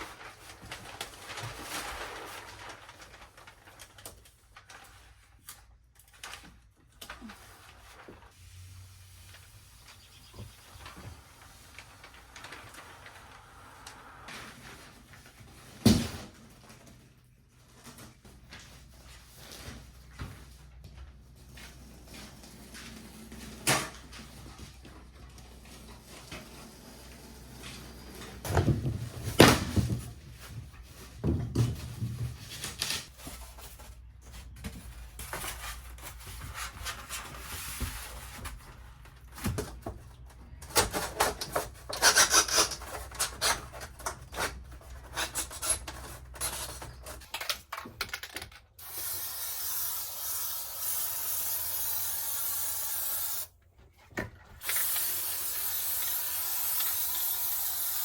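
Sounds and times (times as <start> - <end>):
aerosol spray hiss: 48.8 - 53.5, 54.7 - 58.0.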